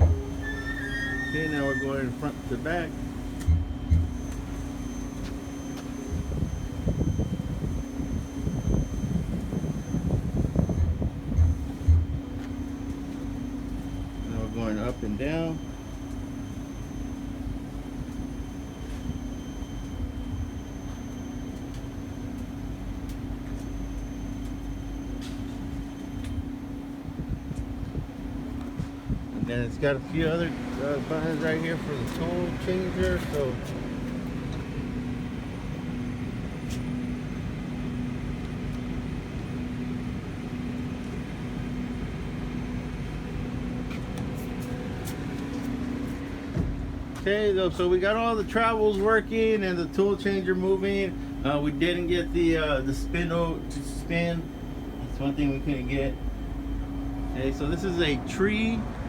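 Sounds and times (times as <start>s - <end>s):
machine servo hum: 0.0s - 7.3s
machine low hum: 0.0s - 59.0s
tool changer whine: 0.0s - 59.0s.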